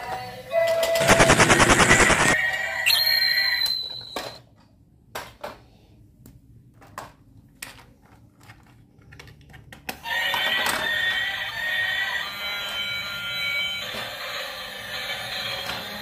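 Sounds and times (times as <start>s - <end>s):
high electronic toy tone: 1.1s - 4.4s.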